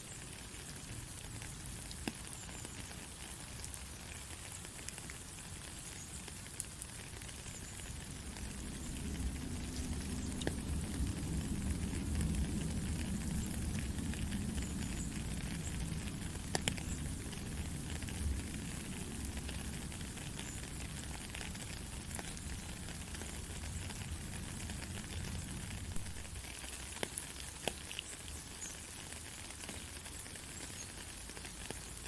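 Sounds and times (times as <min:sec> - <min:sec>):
heavy rain: 0:00.0 - 0:32.0
low rumble: 0:08.0 - 0:17.6.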